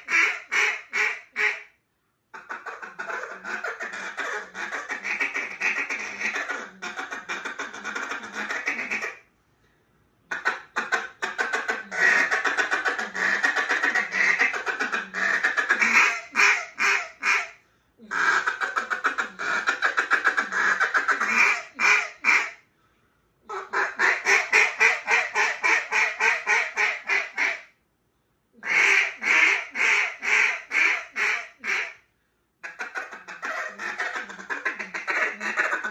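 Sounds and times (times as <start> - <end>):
duck call quacks: 0.0 - 1.7, 2.4 - 9.2, 10.3 - 22.6, 23.5 - 27.7, 28.6 - 32.0, 32.6 - 35.9
breaths: 17.6 - 18.1, 22.6 - 23.4, 32.0 - 32.6.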